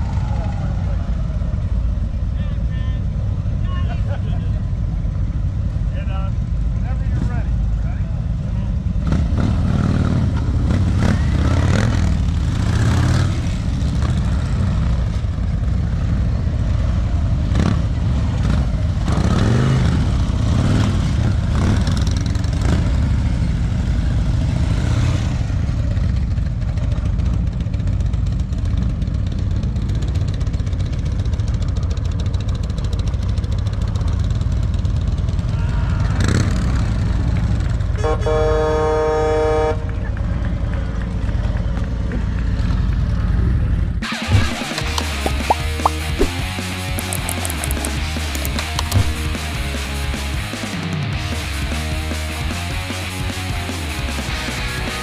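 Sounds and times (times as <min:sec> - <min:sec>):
motorcycle engine revving: 0:08.9 - 0:35.5, 0:36.2 - 0:37.9, 0:42.6 - 0:55.0
vehicle horn honking: 0:38.0 - 0:39.9.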